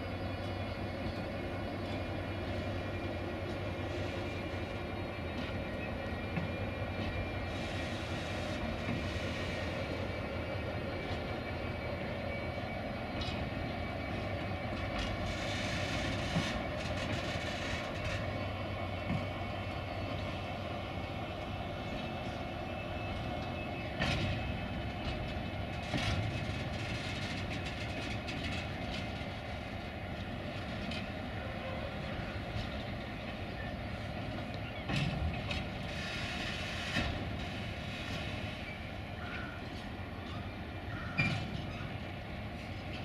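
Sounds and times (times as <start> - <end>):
diesel locomotive engine running: 0.0 - 43.0
rumble of train wagons: 0.0 - 43.0
wheels clicking over rail joints: 14.7 - 18.4, 23.4 - 31.2.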